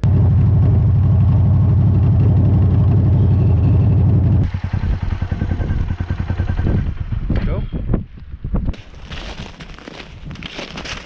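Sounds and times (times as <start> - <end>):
motorcycle engine running: 0.0 - 8.2
choppy low sound: 0.0 - 8.7.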